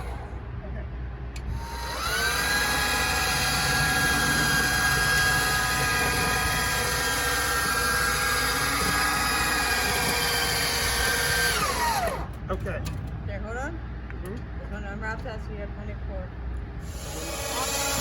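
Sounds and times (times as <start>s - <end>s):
electric hoist motor whining: 1.4s - 12.4s, 16.8s - 18.0s.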